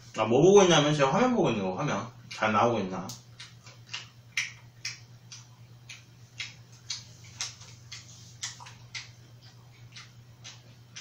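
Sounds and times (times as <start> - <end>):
person chewing food wetly: 2.2 - 2.5, 3.1 - 11.0.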